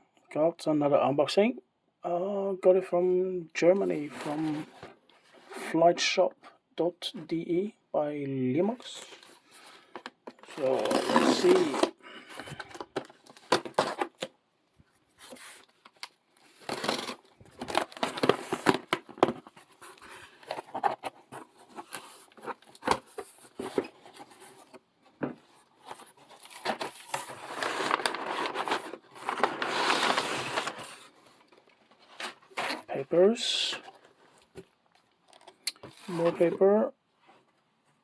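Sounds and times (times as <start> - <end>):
cardboard packaging handled: 9.0 - 14.3, 15.1 - 32.9
paper crinkling: 15.2 - 24.8, 25.4 - 32.9.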